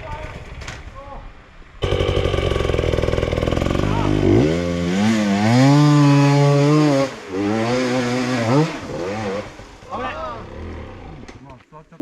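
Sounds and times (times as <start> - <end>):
dirt bike engine revving: 1.8 - 11.4.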